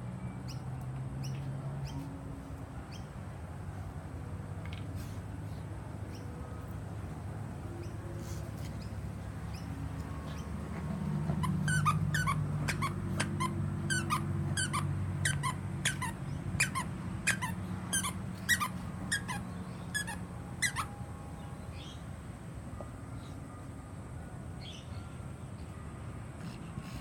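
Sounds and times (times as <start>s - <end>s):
toy squeaker squeaks: 11.4s - 21.0s.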